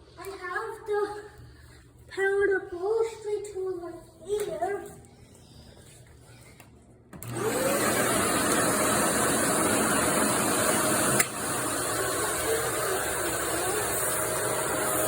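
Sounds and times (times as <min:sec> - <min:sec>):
vacuum cleaner motor whine: 0:07.2 - 0:15.0.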